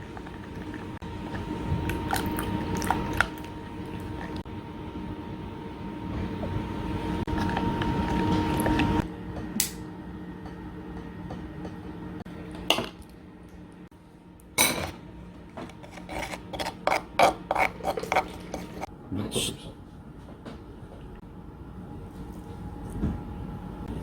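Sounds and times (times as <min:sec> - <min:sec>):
utensils clinking against dishes: 0:14.6 - 0:15.0.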